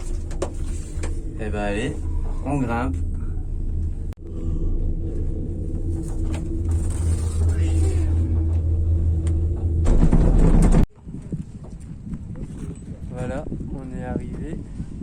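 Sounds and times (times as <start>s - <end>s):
motor hum: 0.0s - 10.9s
low rumble: 0.0s - 15.0s.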